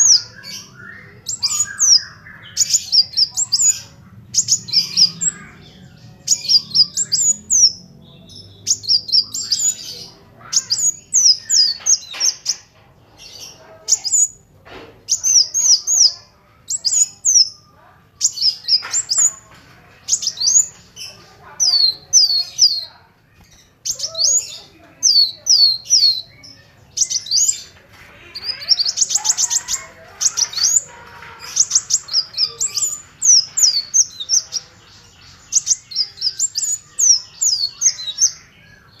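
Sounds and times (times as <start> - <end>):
sunbird chirping: 0.0 - 12.6
bird trill: 0.0 - 14.4, 15.1 - 39.0.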